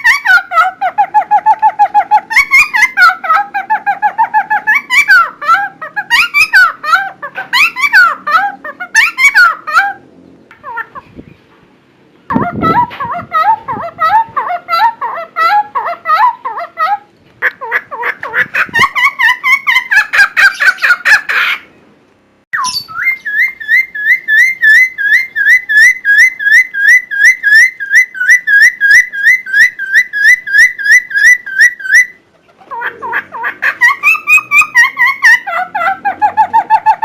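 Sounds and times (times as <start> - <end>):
bird singing loudly: 19.5 - 21.2, 22.6 - 32.2
repeated whistled bird note: 22.6 - 23.8.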